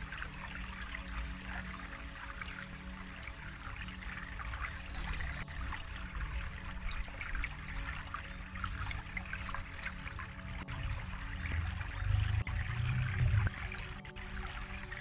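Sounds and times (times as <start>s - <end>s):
low drone of relaxation music: 0.0s - 15.0s
water trickling and splashing: 0.0s - 15.0s.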